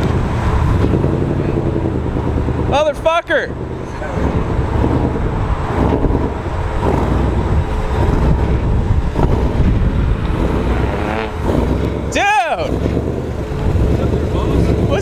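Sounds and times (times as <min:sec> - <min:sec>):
car engine low rumble: 0:00.0 - 0:15.0
wind noise on microphone: 0:03.6 - 0:12.1.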